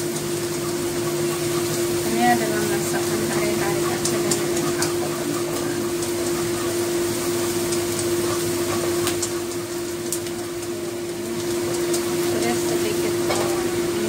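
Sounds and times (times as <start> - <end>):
minced meat sizzling in a wok: 0.0 - 14.0
steady hum: 0.0 - 14.0
spatula clicking against pan: 2.6 - 10.7.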